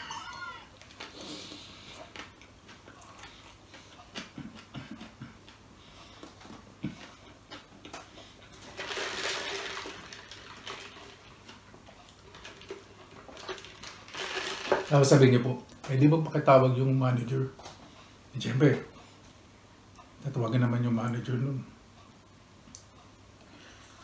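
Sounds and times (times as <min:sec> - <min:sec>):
man chewing a burger: 0:00.8 - 0:14.1.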